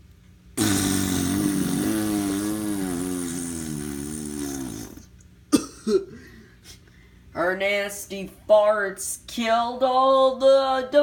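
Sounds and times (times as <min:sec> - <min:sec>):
raspy fart sound effect: 0:00.6 - 0:05.1.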